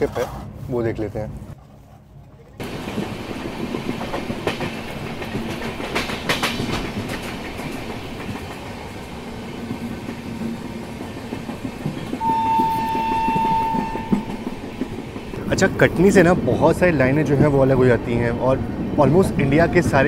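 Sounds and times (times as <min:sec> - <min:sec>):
clickety-clack over rail joints: 0:02.6 - 0:18.1
train wheels rumbling on rail: 0:02.6 - 0:20.0
train horn: 0:12.2 - 0:14.7.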